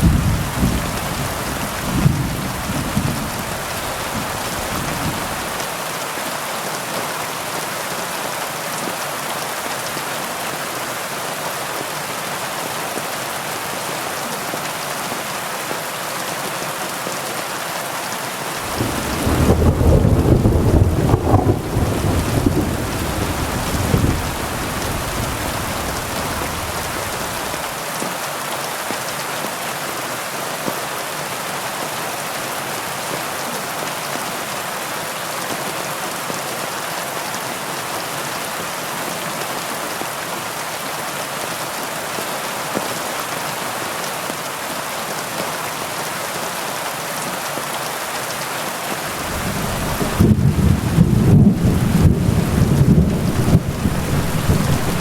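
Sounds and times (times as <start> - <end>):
low thunder rumbling: 0.0 - 5.6, 18.6 - 27.6, 49.2 - 55.0
heavy rain hiss: 0.0 - 7.5, 18.5 - 27.9, 49.0 - 55.0.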